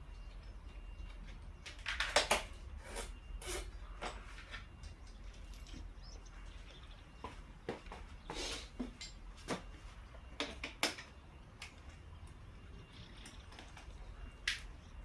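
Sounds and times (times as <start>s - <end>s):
metal tools clinking: 0.8s - 6.2s, 8.9s - 9.3s.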